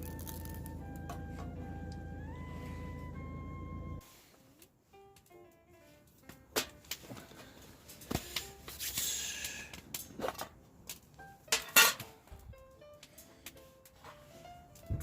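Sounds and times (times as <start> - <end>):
faint background music: 0.0 - 9.4.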